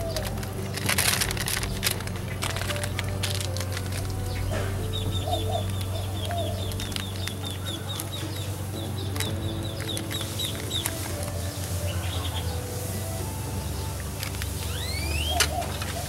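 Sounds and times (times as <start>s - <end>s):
bird chirping: 0.0s - 16.0s
low hum: 0.0s - 16.0s.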